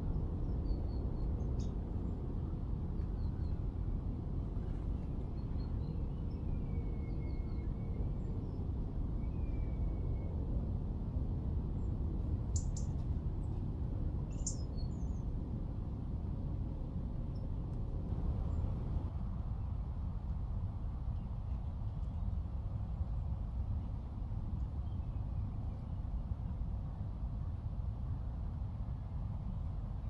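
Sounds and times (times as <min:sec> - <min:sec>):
low background rumble: 0:10.2 - 0:19.7
small birds chirping: 0:14.3 - 0:15.0.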